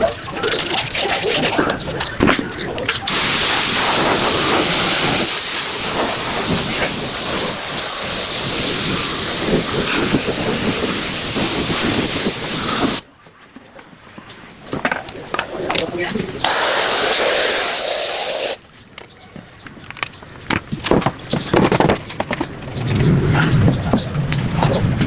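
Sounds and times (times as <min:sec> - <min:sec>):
pressure washer spraying water: 0:03.1 - 0:13.0, 0:16.4 - 0:18.6.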